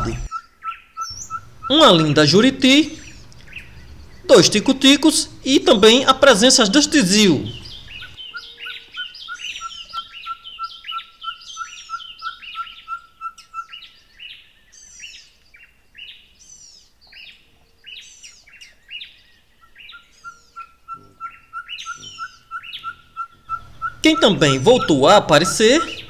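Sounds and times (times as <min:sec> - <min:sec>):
single-pitched bird notes: 0:00.0 - 0:13.7, 0:20.0 - 0:26.0
wild birds chirping: 0:00.0 - 0:26.0.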